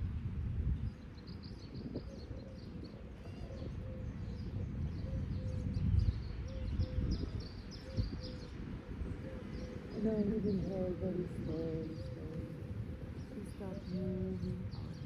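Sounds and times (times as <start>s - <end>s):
small birds chirping: 9.4s - 15.0s.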